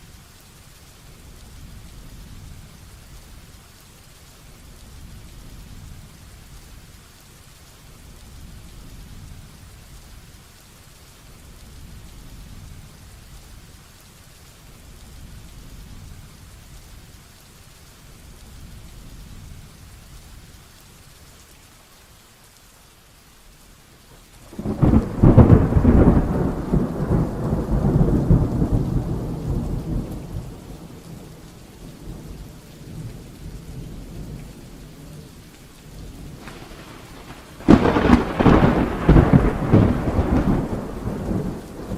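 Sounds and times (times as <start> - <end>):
heavy rain falling: 0.0 - 41.9
loud rumbling thunderclap: 24.5 - 31.4, 36.1 - 41.9.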